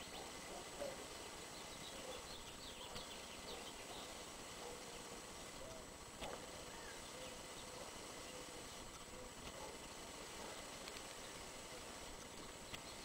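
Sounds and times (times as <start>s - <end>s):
small bird chirps: 0.0s - 5.8s.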